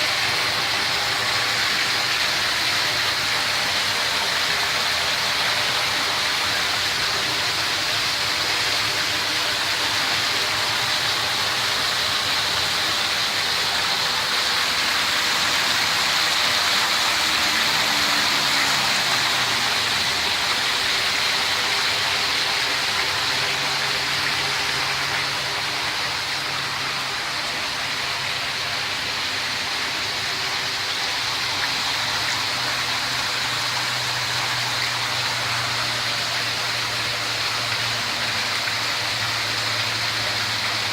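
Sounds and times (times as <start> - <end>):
rushing water: 0.0 - 40.9.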